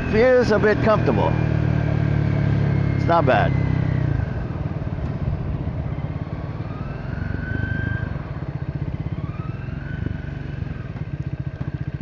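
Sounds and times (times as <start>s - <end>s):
motorcycle engine running: 0.0s - 12.0s
siren-like whine: 5.8s - 11.0s.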